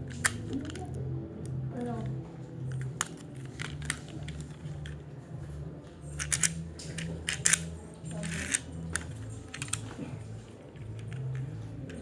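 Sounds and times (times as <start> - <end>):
plastic parts clicking: 0.0 - 1.0, 2.7 - 5.0, 6.2 - 10.0, 10.9 - 12.0.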